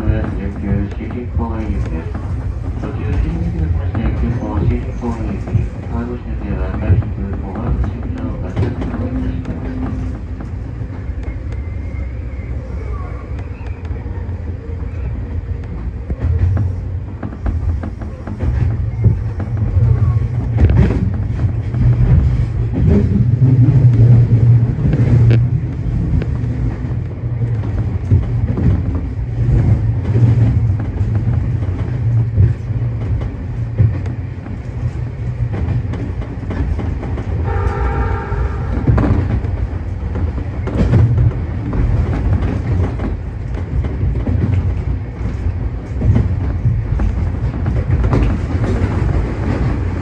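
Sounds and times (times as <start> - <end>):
train running low rumble: 0.0 - 50.0
train horn: 37.4 - 39.4.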